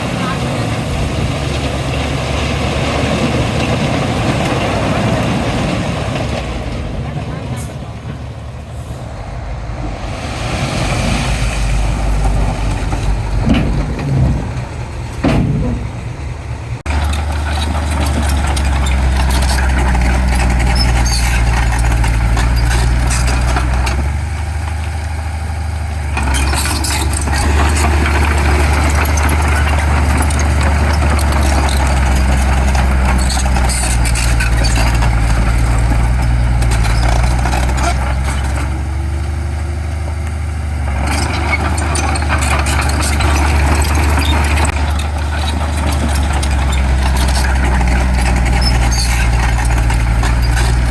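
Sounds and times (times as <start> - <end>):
heavy diesel machinery running: 0.0 - 50.9
knocks: 13.4 - 16.2.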